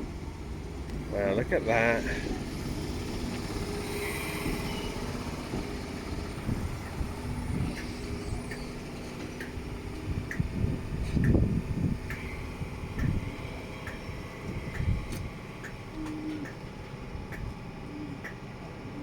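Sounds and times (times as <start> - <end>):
diesel engine running: 0.0 - 19.0
low engine surge: 0.0 - 19.0
faint ticks: 13.0 - 13.2.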